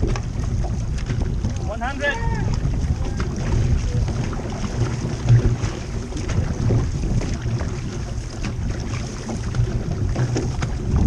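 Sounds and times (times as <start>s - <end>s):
water rushing around paddled canoe: 0.0s - 11.0s
wind buffeting microphone: 0.0s - 11.0s.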